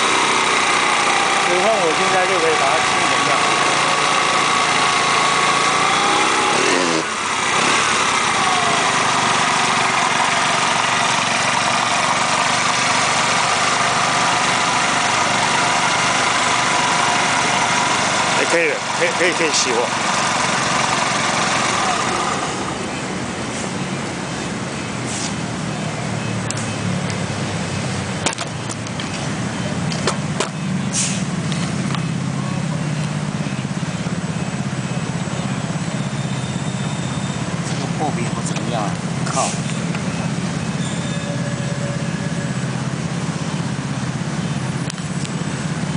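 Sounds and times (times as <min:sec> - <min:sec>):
small motorcycle engine revving: 0:00.0 - 0:22.9.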